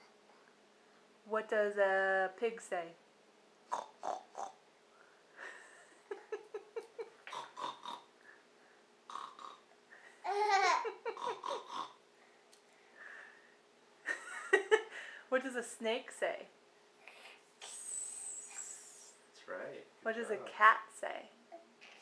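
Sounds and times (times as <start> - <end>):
toddler laughing: 10.2 - 12.0.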